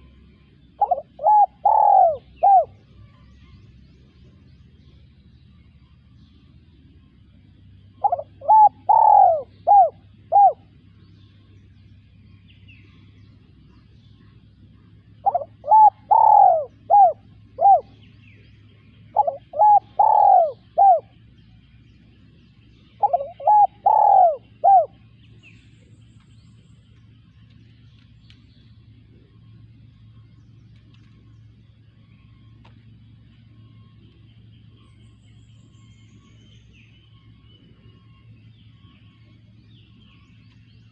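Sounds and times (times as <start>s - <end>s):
dove cooing: 0.0s - 2.8s, 7.9s - 10.9s, 14.8s - 21.3s, 22.8s - 25.2s.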